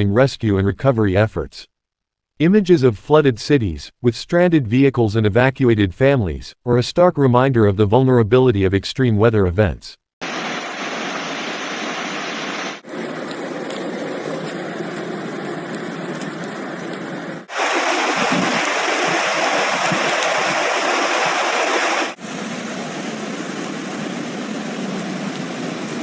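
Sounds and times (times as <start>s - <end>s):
rushing floodwater: 10.2s - 14.8s, 17.5s - 22.2s
rain: 10.2s - 26.0s.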